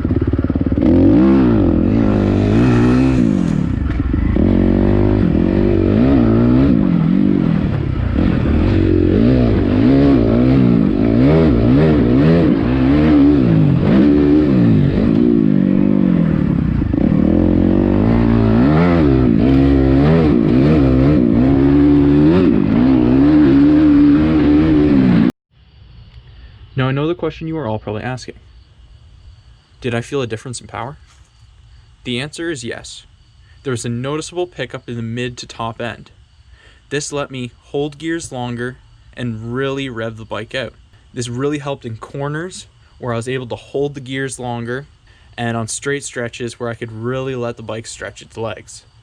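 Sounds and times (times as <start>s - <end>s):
dirt bike engine revving: 0.0s - 25.3s.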